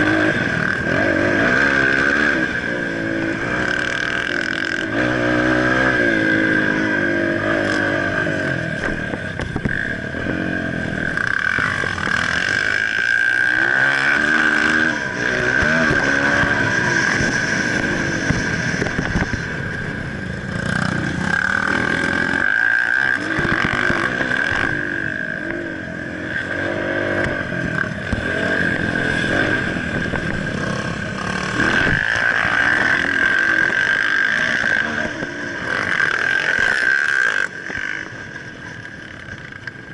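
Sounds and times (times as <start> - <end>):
motocross bike engine revving: 0.0 - 39.7.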